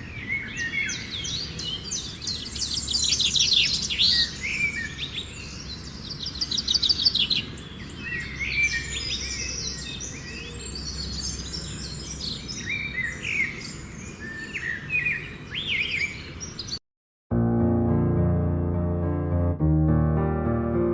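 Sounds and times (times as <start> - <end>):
birds chirping and calling: 0.0 - 16.8.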